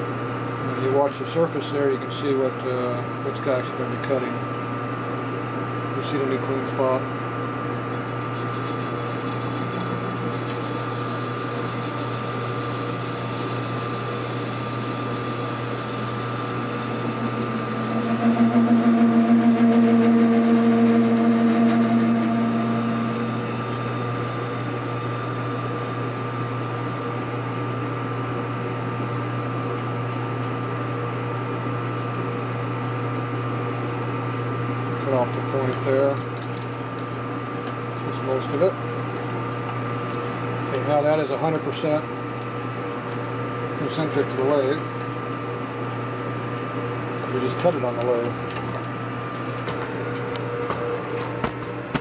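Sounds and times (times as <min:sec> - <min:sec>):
metal lathe humming: 0:08.2 - 0:26.9
pitched drone: 0:16.4 - 0:24.3.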